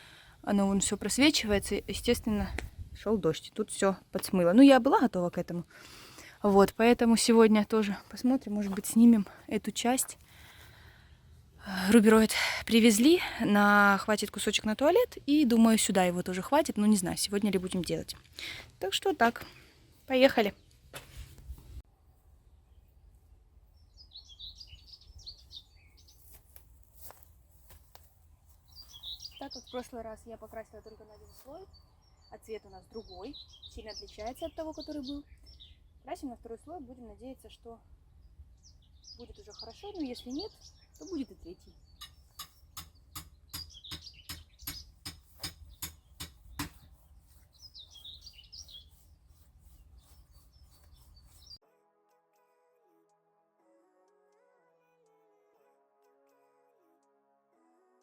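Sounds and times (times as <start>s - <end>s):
small birds chirping: 22.4s - 27.2s, 28.4s - 51.6s.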